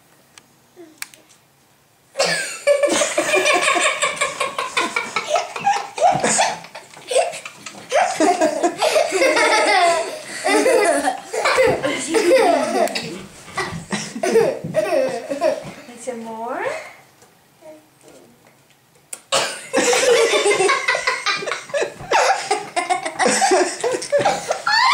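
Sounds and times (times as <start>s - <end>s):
people laughing loudly: 2.2s - 15.6s, 19.7s - 24.9s.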